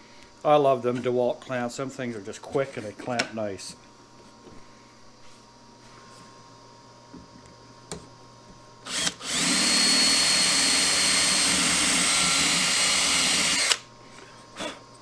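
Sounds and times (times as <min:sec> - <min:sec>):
power drill running: 0:08.9 - 0:13.9.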